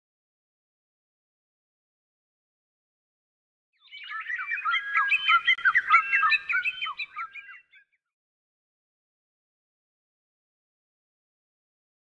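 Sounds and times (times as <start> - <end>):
birds chirping: 3.8 - 7.8.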